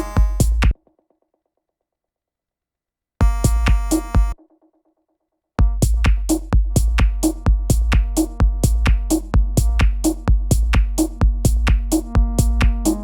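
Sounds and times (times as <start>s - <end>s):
electronic techno loop: 0.0s - 0.7s, 3.2s - 4.4s, 5.6s - 13.0s.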